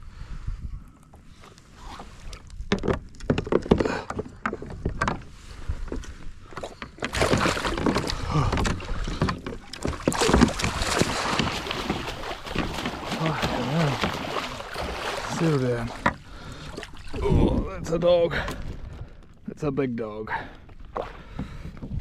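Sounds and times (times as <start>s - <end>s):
fish thrashing in water: 6.5s - 17.4s
knocks against plastic hull: 6.8s - 15.0s.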